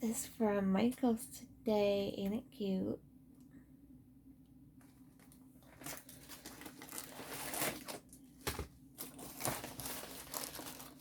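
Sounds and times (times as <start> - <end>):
packaging crinkling: 5.1 - 11.0.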